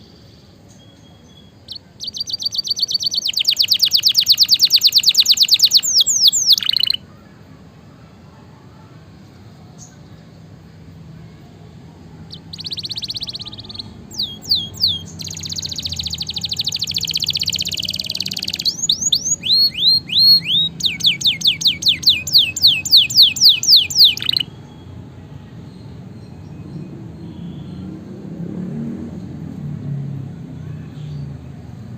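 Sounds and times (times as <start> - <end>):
canary singing: 0.0 - 7.3, 12.2 - 28.0.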